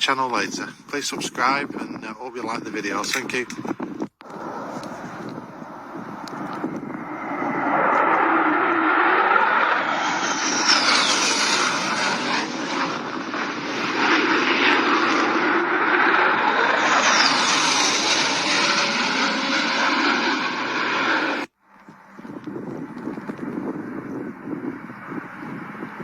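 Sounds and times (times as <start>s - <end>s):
fighter jet engine roar: 2.8s - 21.5s, 22.1s - 26.0s
high falling jet whine: 4.2s - 21.5s.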